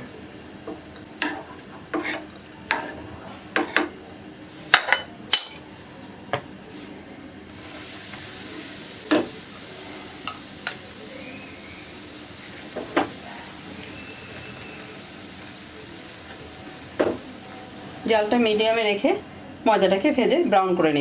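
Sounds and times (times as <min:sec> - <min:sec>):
flour sizzling in hot oil: 0:00.0 - 0:21.0
spoon scraping a frying pan: 0:01.2 - 0:03.9.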